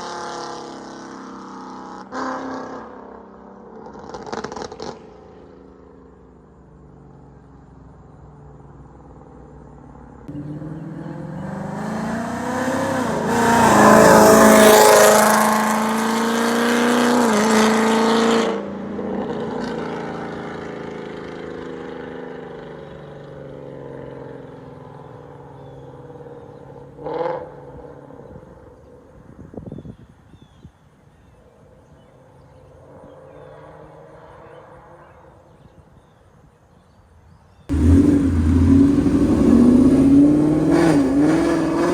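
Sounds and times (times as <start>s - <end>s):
car engine accelerating: 10.3s - 18.6s, 37.7s - 41.9s.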